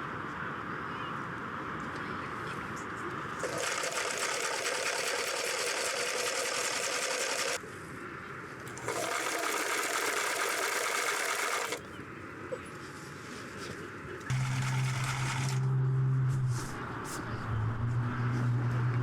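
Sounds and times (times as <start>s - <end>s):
electric sewing machine stitching: 3.4s - 7.6s, 8.7s - 11.9s, 14.3s - 15.7s.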